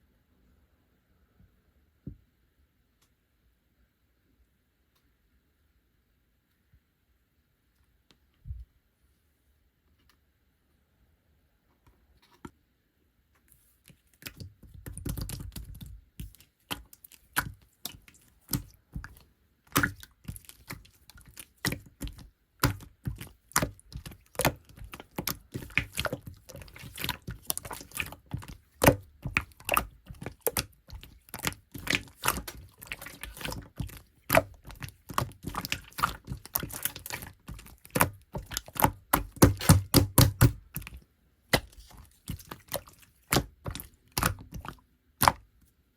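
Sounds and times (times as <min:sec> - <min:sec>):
slime popping and clicking: 0:21.6 - 0:45.4.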